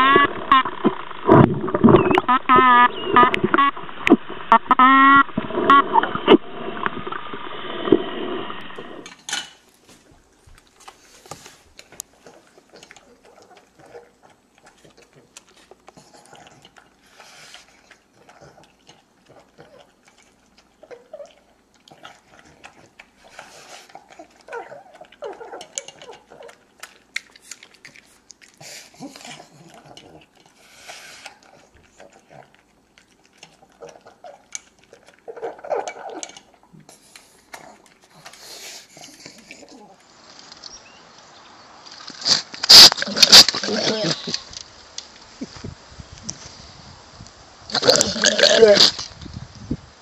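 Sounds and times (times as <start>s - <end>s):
dog crunching dry kibble: 9.6s - 30.6s, 31.2s - 39.8s.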